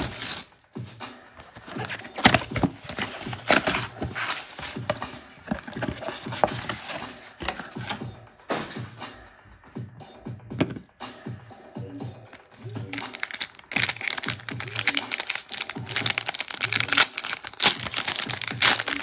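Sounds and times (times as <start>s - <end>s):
trading cards being handled: 1.4s - 8.0s, 12.4s - 19.0s
cellophane wrappers crinkling: 12.4s - 19.0s.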